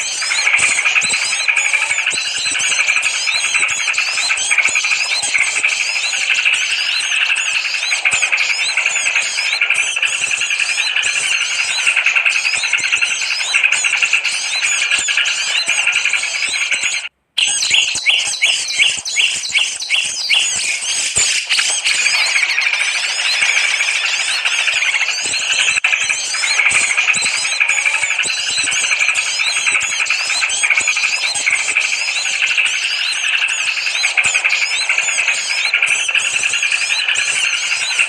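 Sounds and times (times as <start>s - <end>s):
sharp bird notes: 0.0s - 38.0s
songbirds chirping and twittering: 0.0s - 38.0s.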